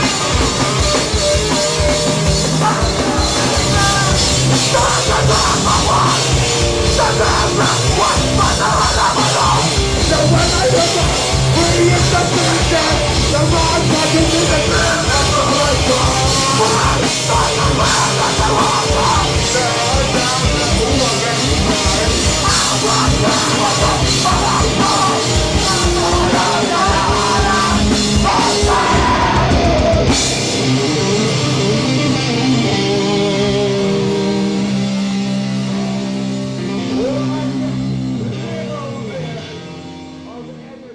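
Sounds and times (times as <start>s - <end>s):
pounding drums: 0.0s - 31.2s
distorted guitars: 0.0s - 40.9s.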